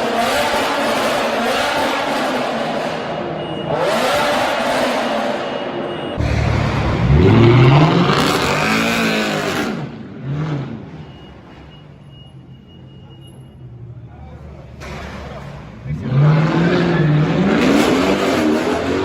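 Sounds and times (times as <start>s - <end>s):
car engine revving: 0.0s - 11.0s, 14.8s - 19.0s.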